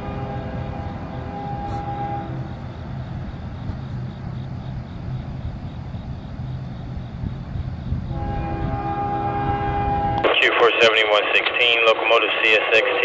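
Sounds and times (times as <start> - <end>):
train air horn chord: 0.0 - 2.6, 8.1 - 10.2
freight train rumble: 0.0 - 13.0.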